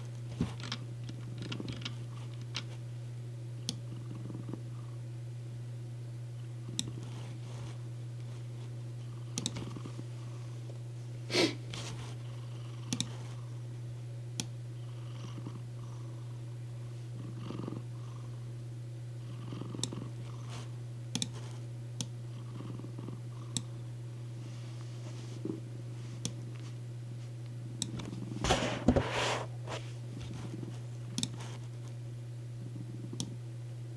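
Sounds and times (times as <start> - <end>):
cat purring: 3.9 - 5.0, 6.6 - 10.7, 11.3 - 13.7, 14.8 - 18.5, 19.2 - 21.6, 22.3 - 26.2, 32.6 - 33.4
small clicks: 12.9 - 13.2, 21.1 - 22.2, 31.1 - 31.5.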